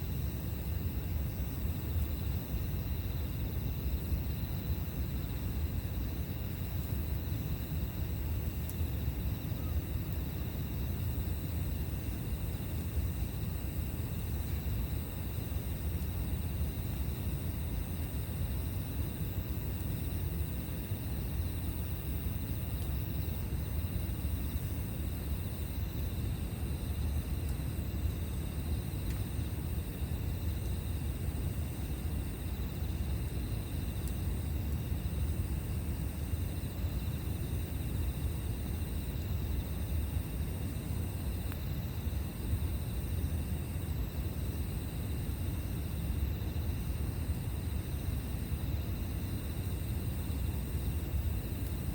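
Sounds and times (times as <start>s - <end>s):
campfire rumbling: 0.0s - 51.9s.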